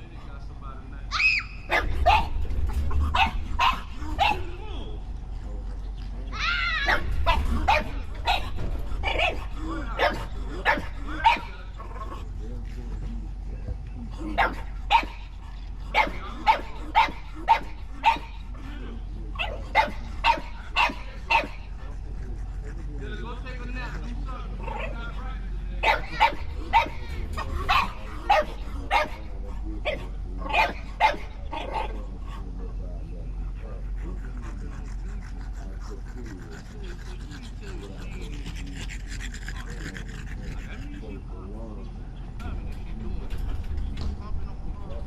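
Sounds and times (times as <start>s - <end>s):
steady low hum: 0.0s - 45.0s
dog barking: 1.6s - 4.6s, 6.8s - 12.2s, 14.2s - 15.3s, 15.9s - 18.6s, 19.4s - 21.9s, 25.8s - 32.1s.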